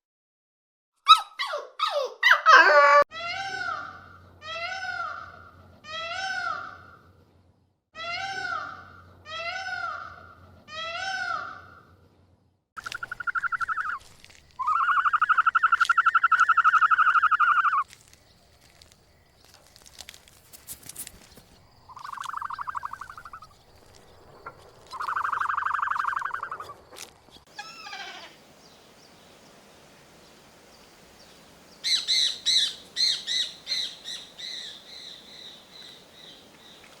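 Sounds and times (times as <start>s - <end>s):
rising and falling animal calls: 2.2s - 3.1s, 12.8s - 14.0s, 14.6s - 17.8s, 21.9s - 23.6s, 24.4s - 28.4s
high bird chirps: 12.8s - 17.8s, 21.9s - 26.9s.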